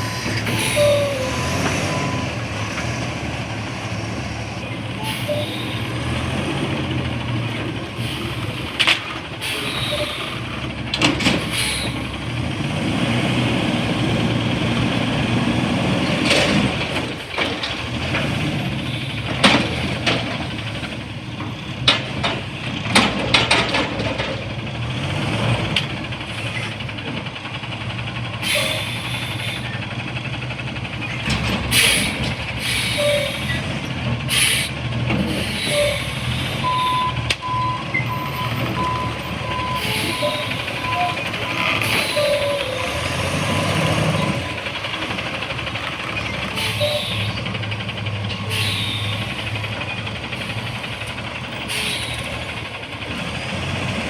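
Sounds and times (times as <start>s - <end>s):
air brakes hissing: 0.0s - 2.5s, 4.8s - 12.4s, 16.5s - 20.8s, 28.4s - 29.8s, 31.1s - 52.7s
garbage truck engine running: 0.0s - 54.0s.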